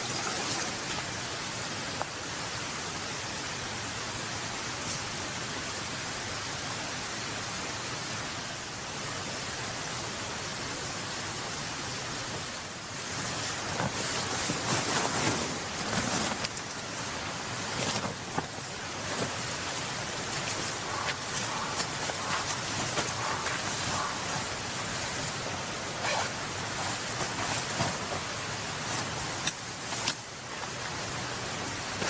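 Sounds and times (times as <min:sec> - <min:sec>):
steady outdoor hiss: 0:00.0 - 0:32.0
rustling and handling noises: 0:12.2 - 0:32.0.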